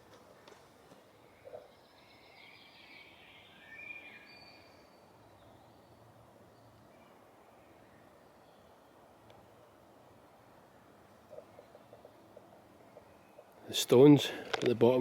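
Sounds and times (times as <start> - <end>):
songbird warbling trill: 1.3 - 5.8
thin bird whistle: 2.1 - 5.6.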